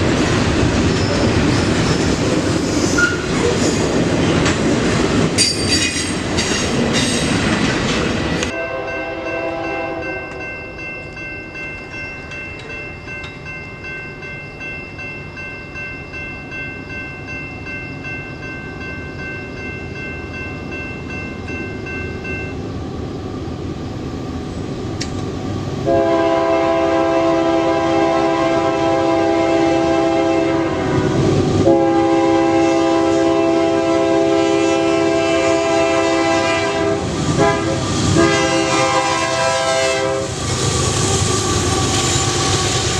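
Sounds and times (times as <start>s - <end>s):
train rumbling past: 0.0s - 42.9s
diesel locomotive horn blasts: 8.5s - 10.5s, 25.8s - 40.4s.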